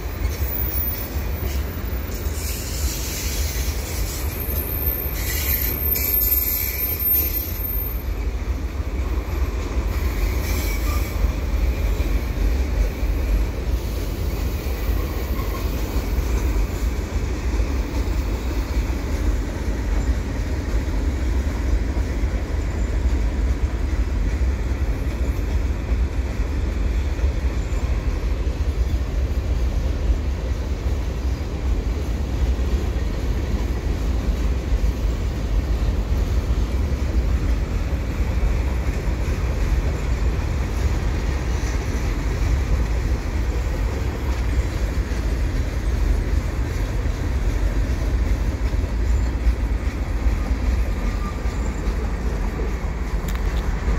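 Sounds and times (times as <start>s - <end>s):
freight train rumbling past: 0.0s - 53.9s
high wheel squeal: 0.1s - 8.4s, 9.4s - 12.0s, 48.9s - 52.7s.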